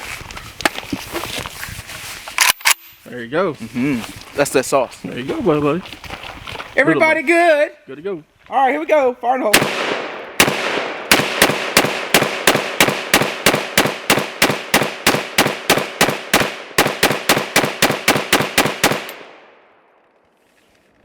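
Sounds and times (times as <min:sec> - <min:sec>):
rifle semi-automatic fire: 0:09.6 - 0:19.4.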